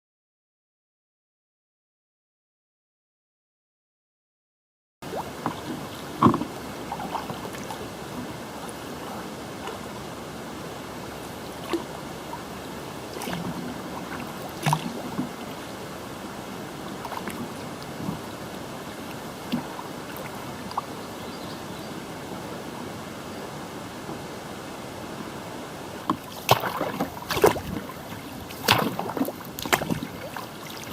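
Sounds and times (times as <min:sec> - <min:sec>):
hiss of water and wind: 0:05.0 - 0:30.9
paddle splashes: 0:05.0 - 0:30.9
paddle knocks: 0:05.3 - 0:08.3, 0:26.0 - 0:30.9.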